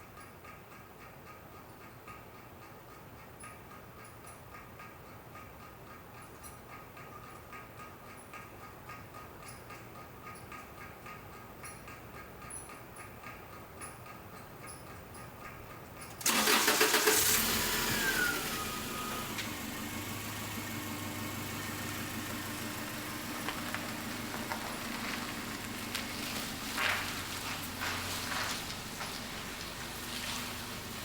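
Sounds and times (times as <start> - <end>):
light regular ticking: 0.0 - 31.0
car engine starting and idling: 16.1 - 31.0.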